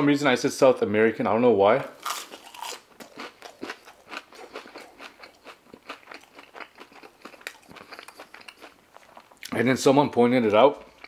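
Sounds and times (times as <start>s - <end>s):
chewing crunchy fries: 1.9s - 9.7s, 10.4s - 11.0s.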